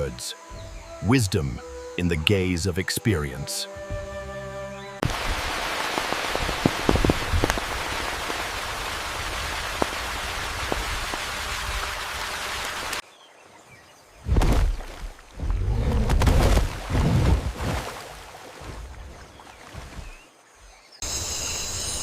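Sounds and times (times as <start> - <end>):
sharp raindrop clicks: 5.0 - 8.8, 9.4 - 11.5
rain hissing: 5.0 - 13.0.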